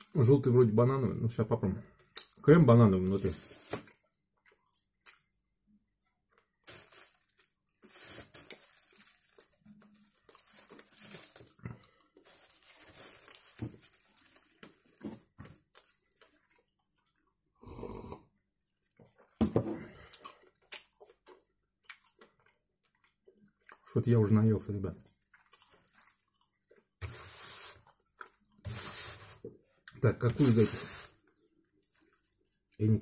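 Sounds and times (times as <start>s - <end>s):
person chewing: 3.6s - 5.5s, 6.2s - 23.9s, 25.0s - 29.1s.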